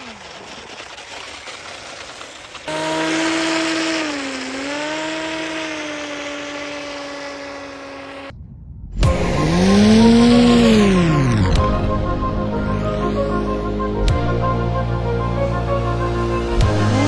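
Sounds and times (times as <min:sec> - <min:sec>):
rc car motor whining: 0:02.7 - 0:08.3, 0:09.2 - 0:12.0, 0:16.6 - 0:17.0
music with rising sweep: 0:08.3 - 0:17.0.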